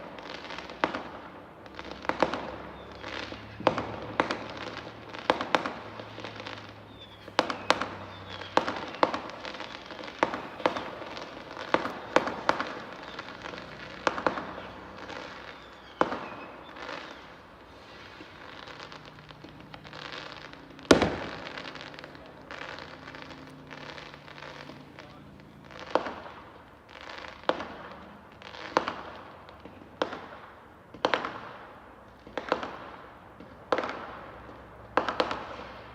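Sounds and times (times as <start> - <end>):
distant fireworks bangs: 0.0 - 35.9
fireworks crackling: 0.0 - 35.9.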